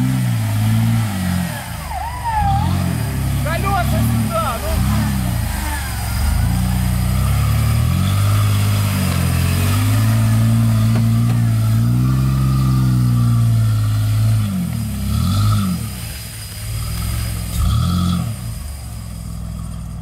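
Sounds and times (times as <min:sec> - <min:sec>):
engine revving under load: 0:00.0 - 0:20.0.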